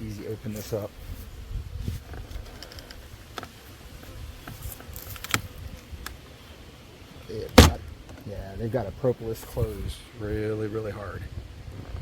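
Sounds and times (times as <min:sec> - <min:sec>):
beehive clicks and creaks: 0:02.0 - 0:08.4
loud sharp crack: 0:07.6 - 0:07.9.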